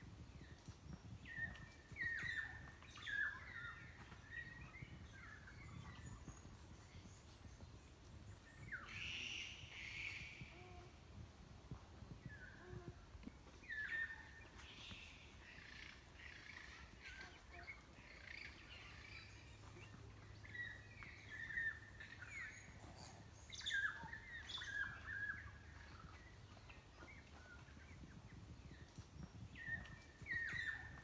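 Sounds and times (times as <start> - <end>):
birds chirping and whistling: 12.1 - 31.0.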